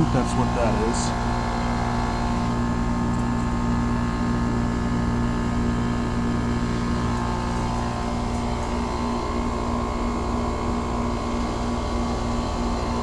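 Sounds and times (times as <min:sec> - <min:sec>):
steady tones: 0:00.0 - 0:02.8
compressor humming: 0:00.0 - 0:13.0
condenser fan rushing: 0:00.0 - 0:13.0.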